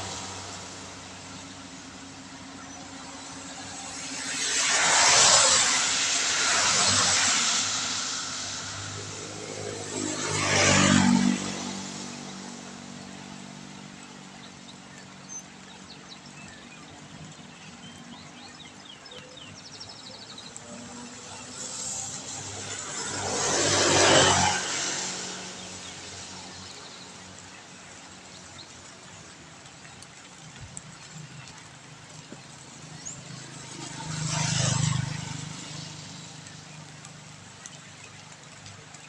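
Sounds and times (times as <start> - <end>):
tyres hissing on water: 0.0 - 14.4
steady hiss of rain: 0.0 - 39.0
vehicles passing on wet road: 0.0 - 39.0
car engine: 3.0 - 12.1.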